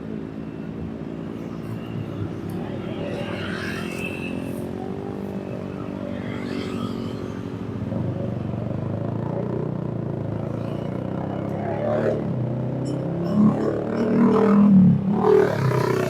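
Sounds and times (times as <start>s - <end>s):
road vehicle engine running: 0.0s - 16.0s.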